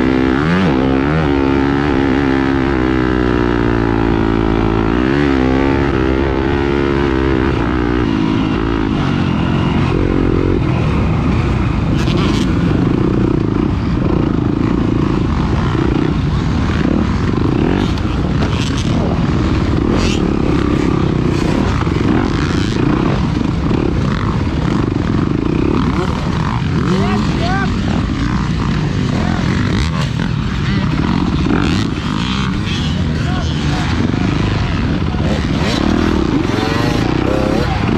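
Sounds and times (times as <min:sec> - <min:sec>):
racing engine revving: 0:33.7 - 0:37.9.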